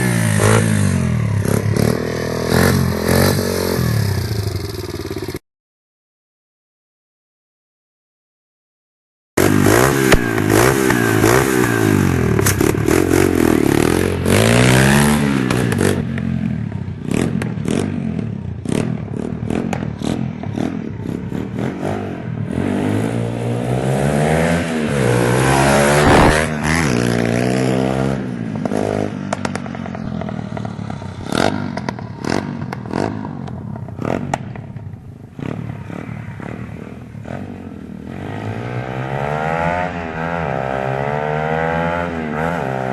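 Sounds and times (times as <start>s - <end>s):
small motorbike engine revving: 0.0s - 5.4s, 9.4s - 34.6s.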